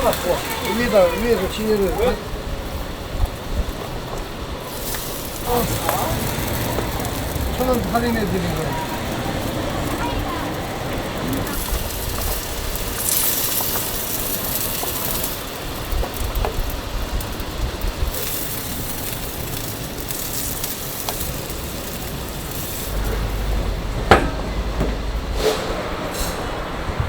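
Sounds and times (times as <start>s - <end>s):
meat sizzling on a grill: 0.0s - 24.0s
low rumble: 22.7s - 25.9s
sharp clack: 24.0s - 25.8s.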